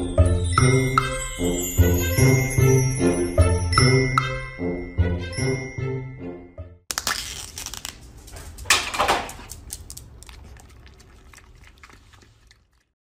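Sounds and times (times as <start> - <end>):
foil lid peeling and crinkling: 6.9 - 10.0.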